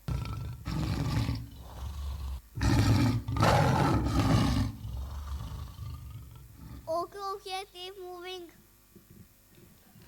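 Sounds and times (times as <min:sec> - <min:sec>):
tiger roaring: 0:00.0 - 0:06.9.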